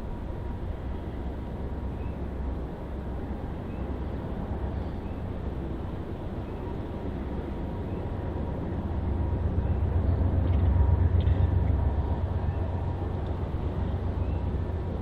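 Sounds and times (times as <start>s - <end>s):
freight train rumble: 0.0s - 15.0s.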